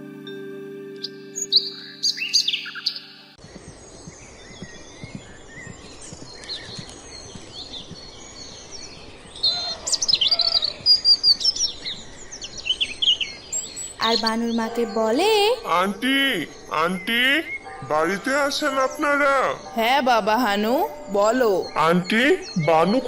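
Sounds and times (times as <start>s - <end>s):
background music with held tones: 0.0s - 3.4s
songbirds chirping: 0.2s - 23.0s.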